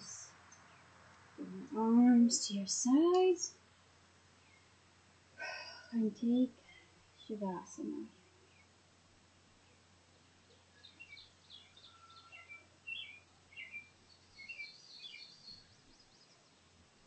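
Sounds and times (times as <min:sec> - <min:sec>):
birdsong chirps: 0:00.0 - 0:01.5, 0:02.3 - 0:05.7, 0:06.6 - 0:08.9, 0:09.5 - 0:16.8
bird trill: 0:10.8 - 0:16.3.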